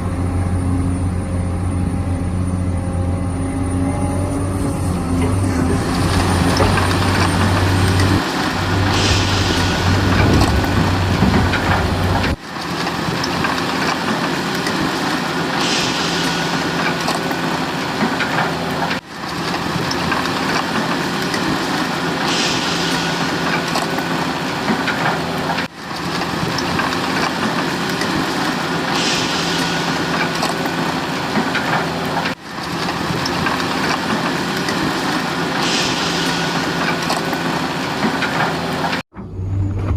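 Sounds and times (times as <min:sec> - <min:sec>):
deep low hum: 0:00.0 - 0:12.4, 0:39.1 - 0:39.9
model excavator engine running: 0:00.0 - 0:39.9.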